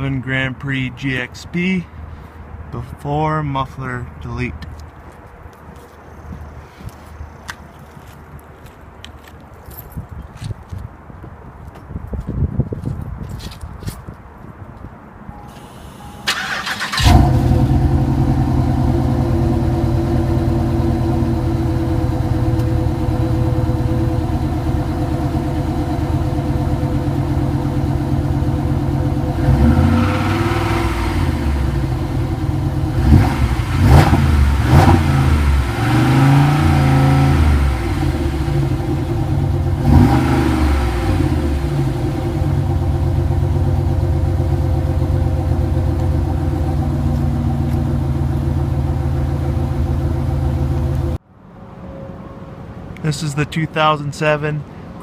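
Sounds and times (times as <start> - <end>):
car engine cranking: 15.5 - 51.2
car engine idling: 15.6 - 51.2
car engine revving: 15.6 - 51.2.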